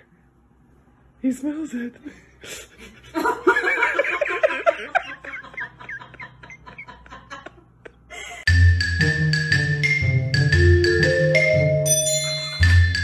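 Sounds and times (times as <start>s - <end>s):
person giggling: 2.4s - 8.5s.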